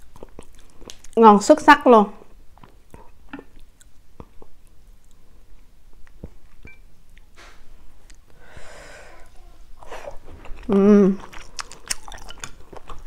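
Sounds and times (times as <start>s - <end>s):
chewing noodles: 0.0s - 1.2s, 9.8s - 13.0s
wet mouth clicks and smacks: 11.2s - 13.0s.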